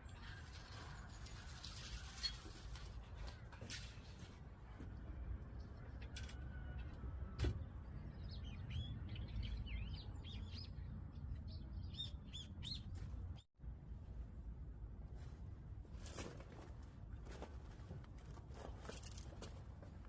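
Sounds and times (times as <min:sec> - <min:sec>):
small birds chirping: 0:07.6 - 0:13.4.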